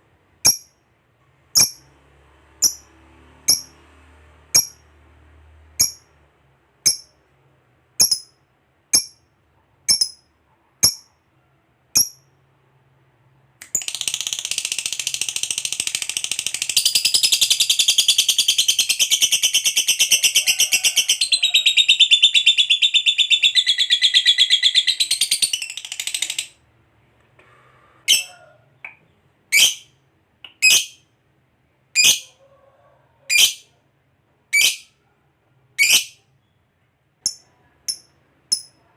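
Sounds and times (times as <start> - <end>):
lovebird chirping and trilling: 1.6 - 1.9, 2.6 - 2.9, 3.5 - 3.7, 4.6 - 4.8, 5.8 - 6.1, 8.0 - 9.2, 9.9 - 10.2, 12.0 - 12.2, 13.7 - 26.6, 28.1 - 28.3, 29.5 - 30.0, 30.6 - 31.0, 32.0 - 32.3, 33.3 - 33.7, 34.5 - 35.0, 35.8 - 36.5.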